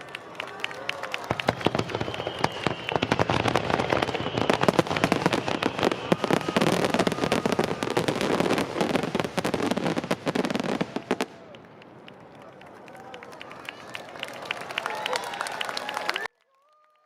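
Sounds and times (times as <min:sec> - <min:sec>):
fireworks bangs and crackles: 0:01.1 - 0:13.8.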